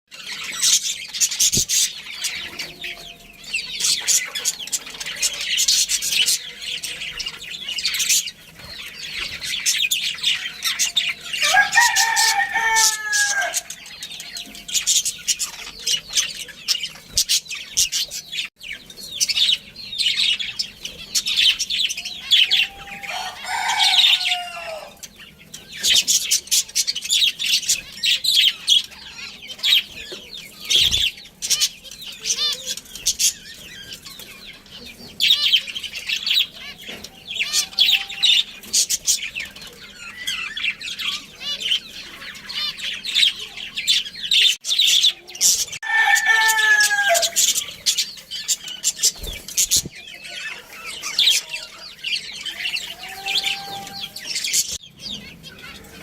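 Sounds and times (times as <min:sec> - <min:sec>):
budgerigars chirping: 0:00.1 - 0:56.0
rooster crowing: 0:10.4 - 0:14.7, 0:22.2 - 0:25.0, 0:37.4 - 0:38.4, 0:45.8 - 0:47.5, 0:50.4 - 0:54.6.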